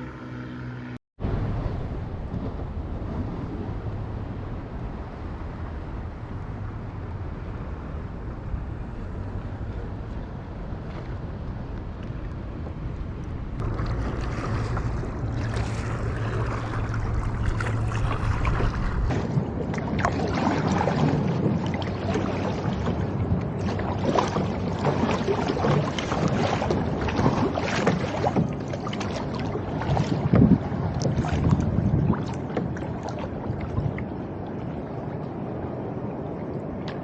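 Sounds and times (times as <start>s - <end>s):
steady low hum: 0.0s - 19.6s
wind: 0.0s - 37.0s
water splashing: 1.3s - 37.0s.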